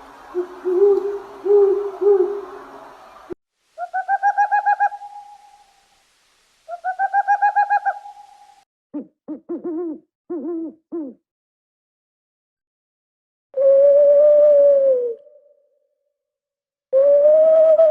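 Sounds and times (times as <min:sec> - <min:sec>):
owl trilled hoots: 0:00.4 - 0:02.5, 0:03.8 - 0:05.7, 0:06.7 - 0:11.2, 0:13.6 - 0:15.4
owl yelping calls: 0:03.8 - 0:05.6, 0:06.7 - 0:08.5.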